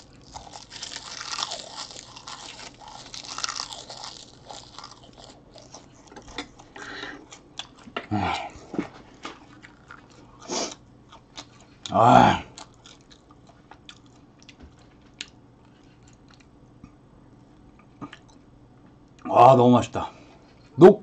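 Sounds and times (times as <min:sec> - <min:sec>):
crisp chewing crunches: 0:00.0 - 0:08.0, 0:09.2 - 0:16.5.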